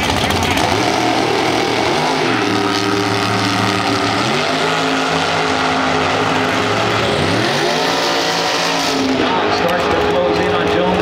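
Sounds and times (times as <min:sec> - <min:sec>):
racing car engine at high revs: 0:00.0 - 0:11.0.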